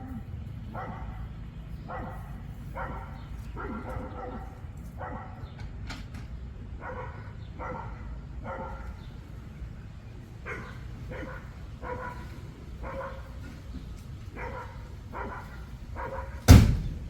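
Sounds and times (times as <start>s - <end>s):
dog barking: 0.0s - 5.6s, 6.8s - 9.1s, 10.4s - 13.6s, 14.3s - 16.5s.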